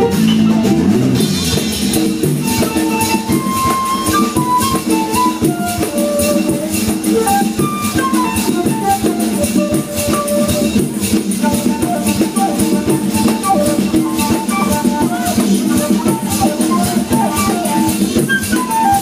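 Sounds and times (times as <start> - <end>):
bass: 0.0 - 11.4
drums: 0.0 - 19.0
high melody line: 0.0 - 19.0
shaker strokes: 2.0 - 19.0.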